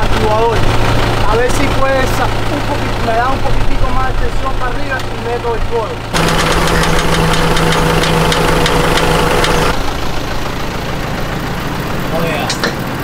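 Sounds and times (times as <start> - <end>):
tractor engine whining and idling: 0.0 - 13.0
sharp clicks and knocks: 6.2 - 9.8, 12.5 - 12.9.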